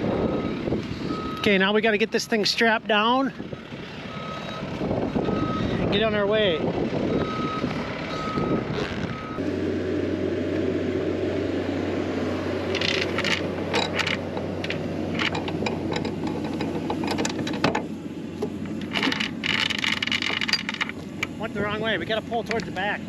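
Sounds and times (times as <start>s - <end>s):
vehicle backup alarm beeping: 0.0s - 2.2s, 3.0s - 6.3s, 7.0s - 9.4s
sharp clicks and metal rattles: 12.7s - 23.0s.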